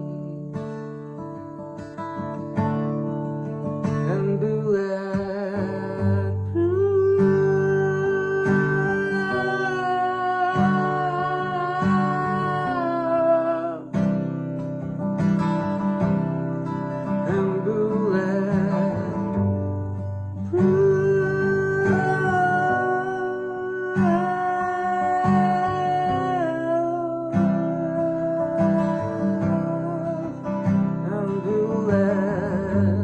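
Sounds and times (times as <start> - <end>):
acoustic guitar chords: 0.0 - 33.0
person singing wordless melody: 4.1 - 14.0, 17.2 - 33.0.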